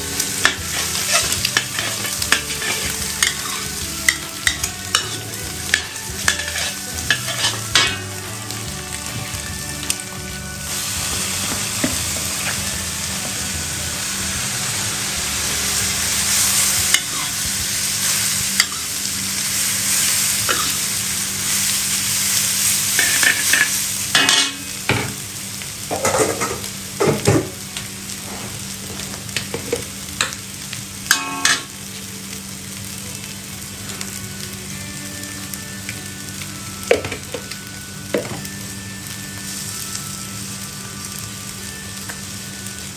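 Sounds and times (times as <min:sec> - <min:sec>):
noodles sizzling in a pan: 0:00.0 - 0:42.9
utensil scraping a pan: 0:00.2 - 0:08.0.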